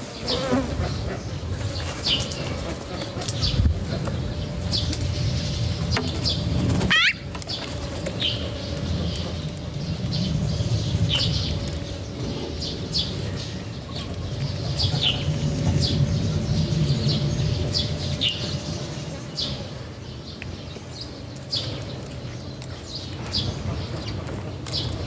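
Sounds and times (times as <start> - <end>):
small birds chirping: 0.0 - 25.0
low rumble: 1.1 - 19.6.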